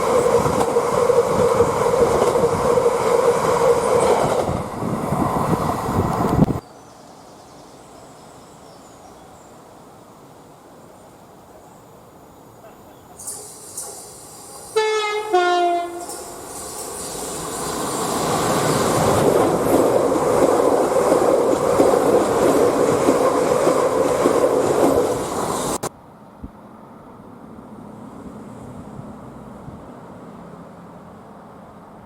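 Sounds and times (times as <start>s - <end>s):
train rumbling past: 0.0s - 6.6s, 9.3s - 32.0s
two-note train horn: 14.7s - 16.3s.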